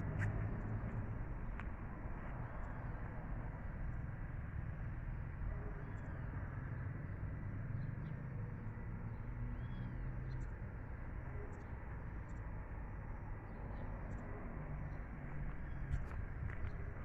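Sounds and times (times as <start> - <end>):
faint bird chirps: 9.5 - 10.6.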